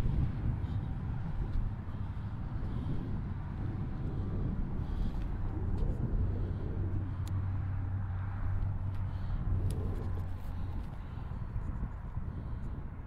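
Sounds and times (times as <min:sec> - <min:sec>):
car engine idling: 0:00.0 - 0:12.7.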